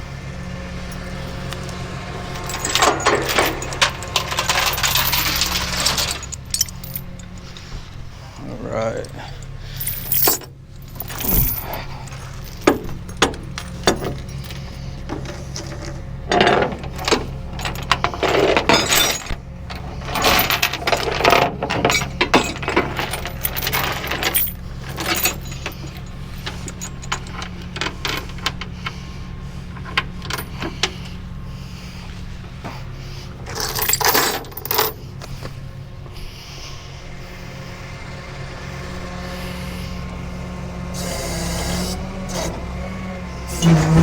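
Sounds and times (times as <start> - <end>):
truck engine humming: 0.0 - 44.0
chains and hooks clinking: 0.9 - 29.0, 29.7 - 31.2, 33.1 - 35.5.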